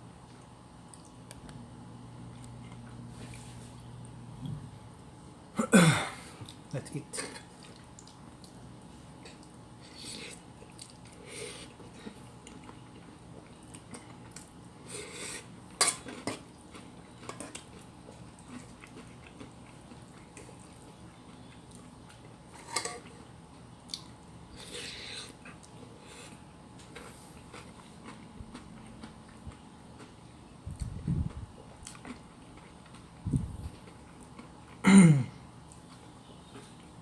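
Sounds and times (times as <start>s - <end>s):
cutlery clinking on dishes: 22.6s - 23.0s.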